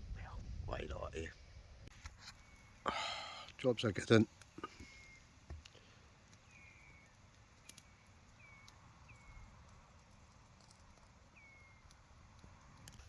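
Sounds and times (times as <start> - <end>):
distant bird whistling: 4.6 - 5.4, 6.4 - 9.5, 11.4 - 11.9.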